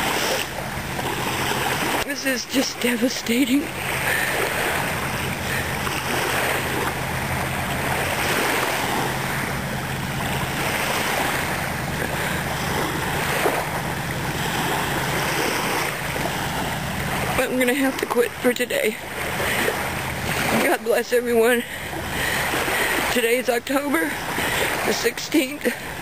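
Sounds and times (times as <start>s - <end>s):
surf washing onto beach: 0.0s - 26.0s
wind rumbling on microphone: 3.6s - 18.4s.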